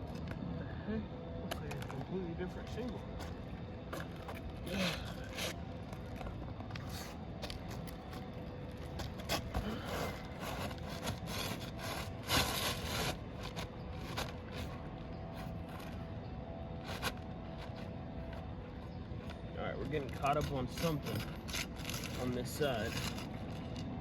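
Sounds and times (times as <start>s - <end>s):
roof shingles scraping: 9.2s - 14.8s.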